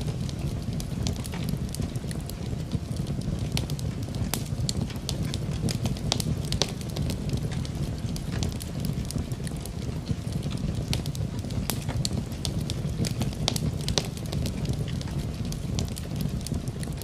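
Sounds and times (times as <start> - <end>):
rain: 0.0 - 17.0
wood fire crackling and popping: 0.0 - 17.0.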